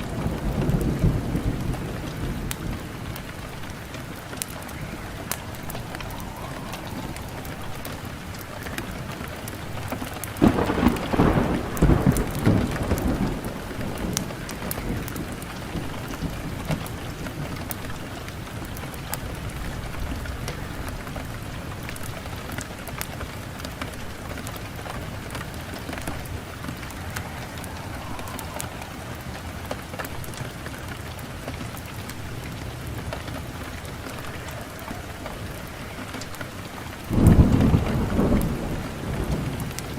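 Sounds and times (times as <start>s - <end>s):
wood fire crackling and popping: 0.0s - 39.9s
low rush of sound: 3.1s - 10.0s, 24.7s - 31.7s.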